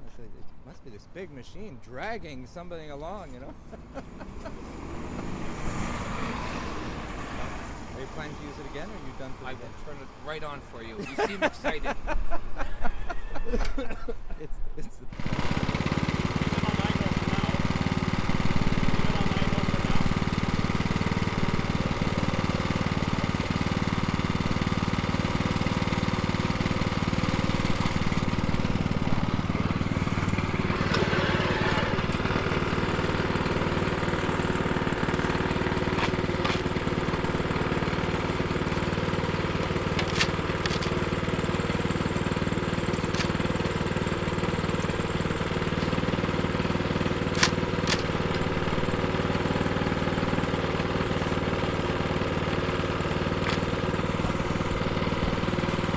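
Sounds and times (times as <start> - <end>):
small engine idling: 15.1 - 55.9
sharp clicks: 39.6 - 41.0, 47.3 - 48.4.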